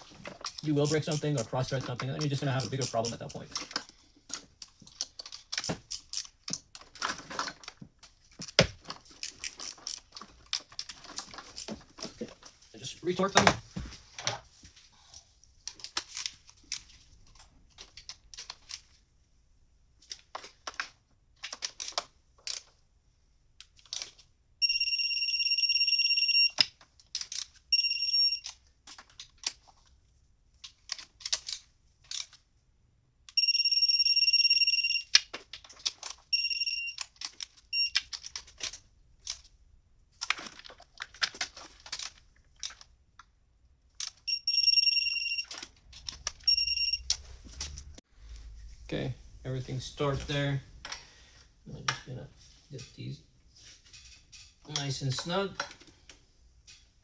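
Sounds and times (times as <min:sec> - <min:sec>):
ratchet and tool clicks: 0:00.4 - 0:06.8, 0:09.1 - 0:11.8
electronic beeps: 0:44.3 - 0:45.6, 0:46.4 - 0:47.2.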